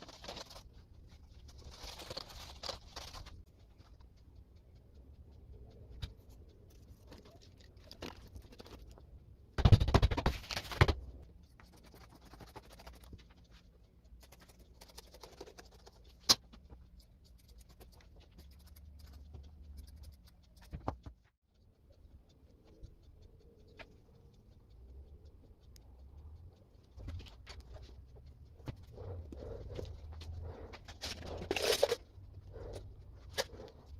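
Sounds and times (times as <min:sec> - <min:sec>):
scratching and rustling: 0:00.0 - 0:05.0, 0:26.6 - 0:33.9.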